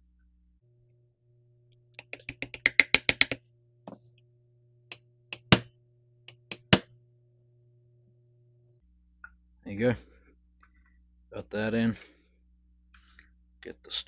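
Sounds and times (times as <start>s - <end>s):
hammer tapping metal pin: 2.0s - 4.0s, 5.3s - 5.7s, 6.3s - 6.9s.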